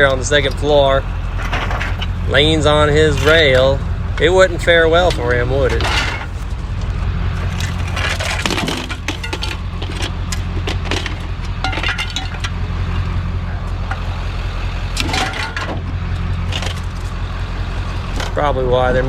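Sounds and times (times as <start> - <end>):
vehicle engine running: 0.0 - 19.0
sharp clattering knocks: 5.0 - 12.6.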